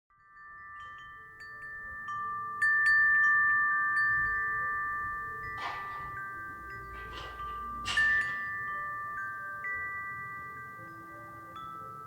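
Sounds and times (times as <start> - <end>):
wind chime ringing: 0.1 - 12.0.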